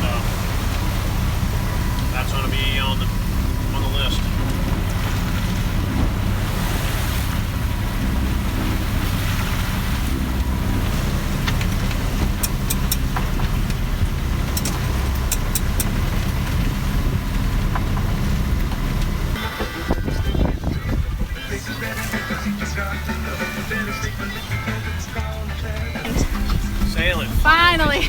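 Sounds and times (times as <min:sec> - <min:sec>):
boat engine running: 0:00.0 - 0:28.0
water around hull: 0:00.0 - 0:28.0
wind on microphone: 0:03.0 - 0:22.6, 0:25.8 - 0:28.0
sharp clicks: 0:11.5 - 0:13.8, 0:14.5 - 0:16.0.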